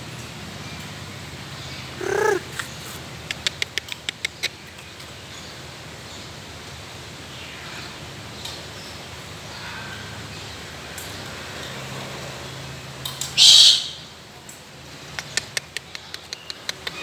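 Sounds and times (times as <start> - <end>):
peacock call: 2.0 - 3.0, 13.4 - 14.0.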